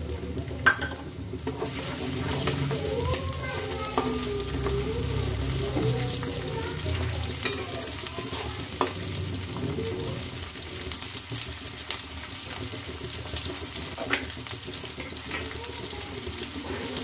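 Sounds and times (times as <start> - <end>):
garlic sizzling in hot oil: 0.0 - 17.0.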